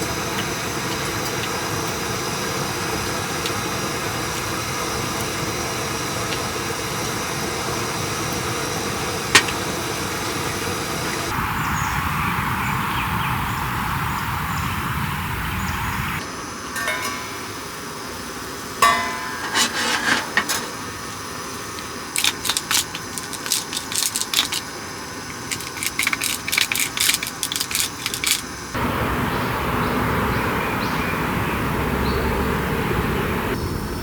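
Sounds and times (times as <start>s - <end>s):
utensils and dishes clinking: 16.8s - 18.0s, 18.8s - 21.0s, 21.7s - 28.6s.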